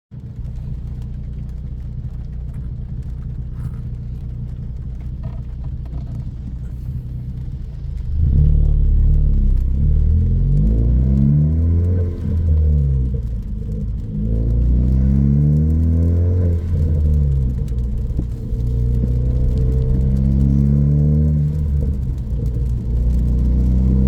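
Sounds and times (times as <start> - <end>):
car engine accelerating: 0.1 - 24.0.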